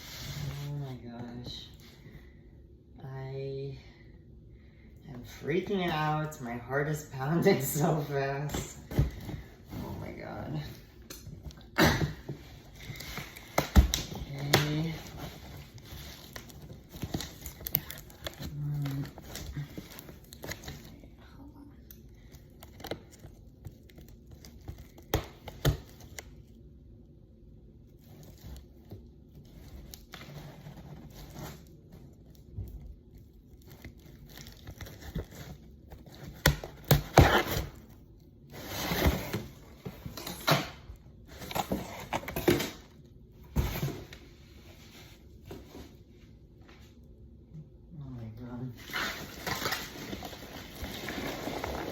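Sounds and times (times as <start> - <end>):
packaging rustling and tearing: 12.4 - 21.1, 33.1 - 43.0, 48.8 - 51.9.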